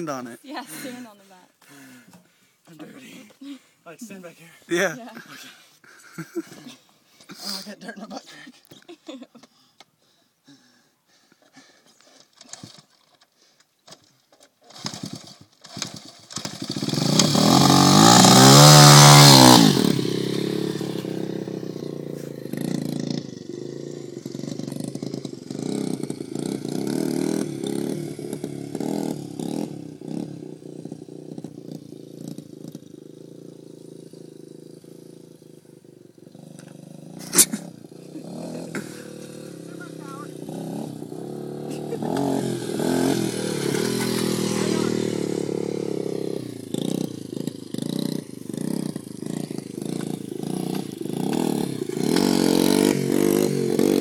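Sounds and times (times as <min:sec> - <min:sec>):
dirt bike engine revving: 0:14.7 - 0:54.0.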